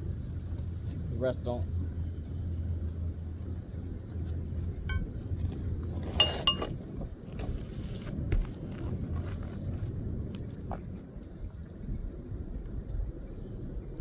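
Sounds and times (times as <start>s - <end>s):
steady low rumble: 0.0s - 14.0s
metal tools clinking: 6.1s - 6.7s.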